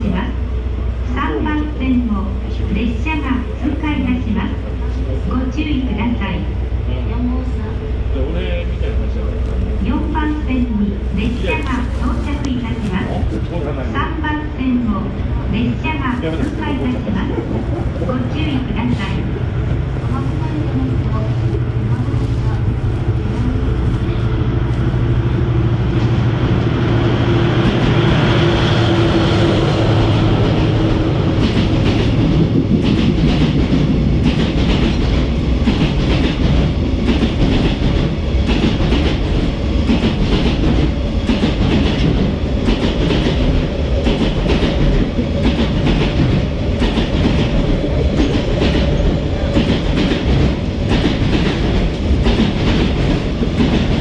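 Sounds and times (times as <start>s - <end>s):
locomotive rumble: 0.0s - 54.0s
wheels clickety-clack on rail joints: 30.4s - 54.0s.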